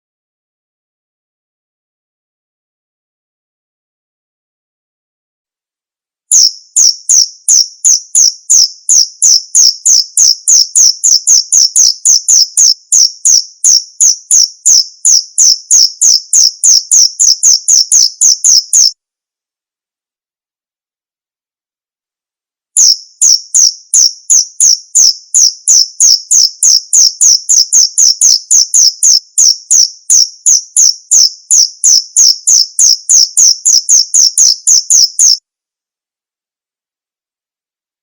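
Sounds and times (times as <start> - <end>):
cricket chirping: 6.3 - 18.9, 22.8 - 35.4.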